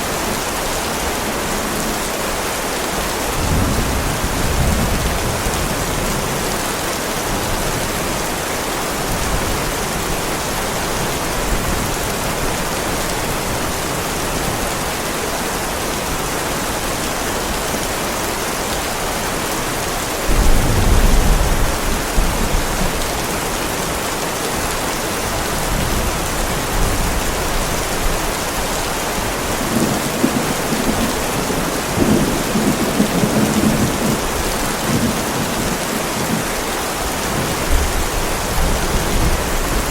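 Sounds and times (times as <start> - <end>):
heavy rain on pavement: 0.0 - 39.9
low thunder rumbling: 20.3 - 23.4, 25.6 - 39.9.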